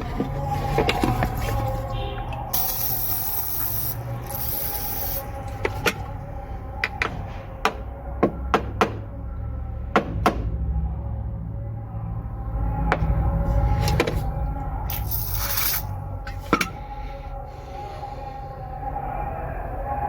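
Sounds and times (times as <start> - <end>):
steady low hum: 0.0 - 8.2
hissing spray bursts: 2.6 - 5.3
small metal parts clicking: 14.9 - 15.9.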